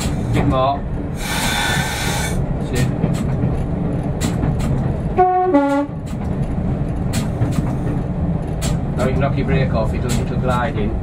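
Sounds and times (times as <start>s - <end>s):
train rumbling: 0.0s - 11.0s
train two-tone horn: 5.1s - 6.0s.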